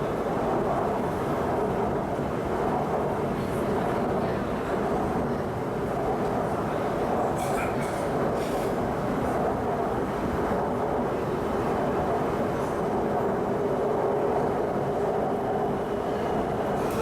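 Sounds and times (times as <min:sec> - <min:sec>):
metro train rumbling: 0:00.0 - 0:17.0.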